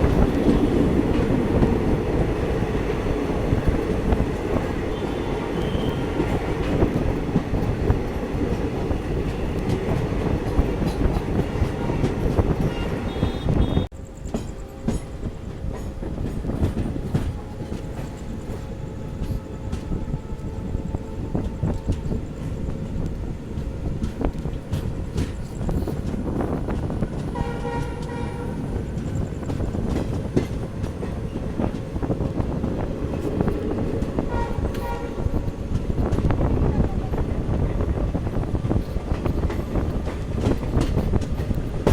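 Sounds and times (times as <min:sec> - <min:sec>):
rail joint clicks: 0:00.0 - 0:41.9
train wheels rumbling on rail: 0:00.0 - 0:41.9
locomotive horn: 0:04.9 - 0:06.4, 0:12.6 - 0:13.9, 0:27.3 - 0:28.7, 0:34.2 - 0:35.4.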